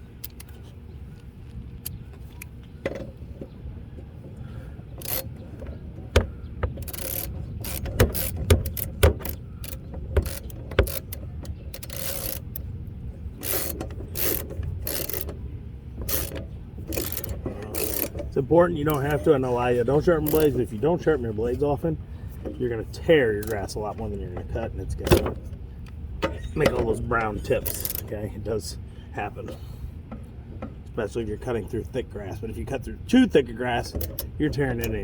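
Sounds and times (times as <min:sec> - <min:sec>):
low steady rumble: 0:00.0 - 0:35.0
hand ratchet clicking: 0:05.0 - 0:12.7, 0:13.4 - 0:15.4, 0:16.0 - 0:19.2, 0:20.2 - 0:20.6, 0:23.4 - 0:23.6, 0:27.6 - 0:28.1, 0:34.0 - 0:35.0
metal tool clunks: 0:26.2 - 0:27.0.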